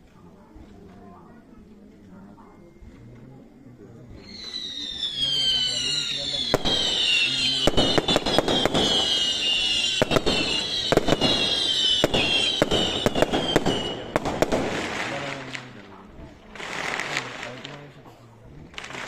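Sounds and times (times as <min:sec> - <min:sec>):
firecrackers banging: 0:04.1 - 0:18.0
descending whistle: 0:04.2 - 0:14.1.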